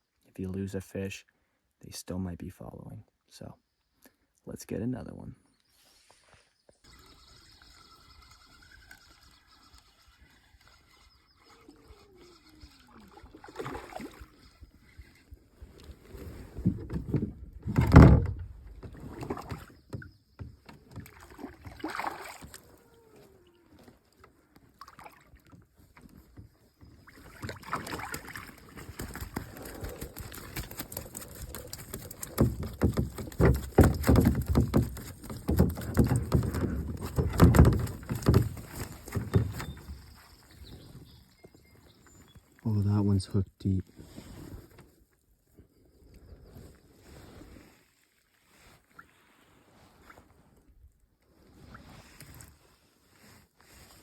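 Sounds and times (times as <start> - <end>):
water splashing around canoe: 6.8 - 42.6, 46.8 - 54.0
knocks against hull: 16.6 - 22.6, 27.5 - 40.0.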